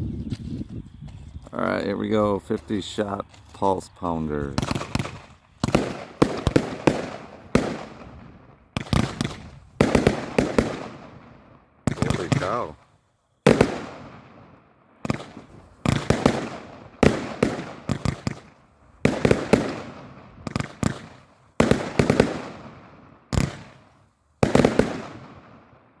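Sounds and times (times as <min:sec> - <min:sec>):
firework bangs: 0:04.6 - 0:12.8, 0:13.5 - 0:25.7.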